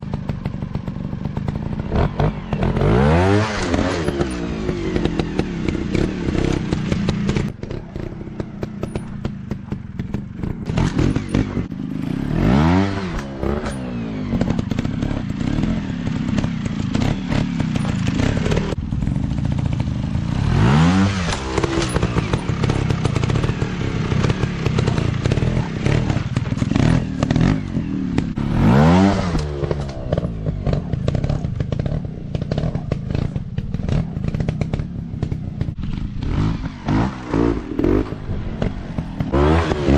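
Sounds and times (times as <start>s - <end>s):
dirt bike engines revving: 0.0s - 39.9s
rattle of clicks and clatter: 8.6s - 11.7s, 13.2s - 18.8s.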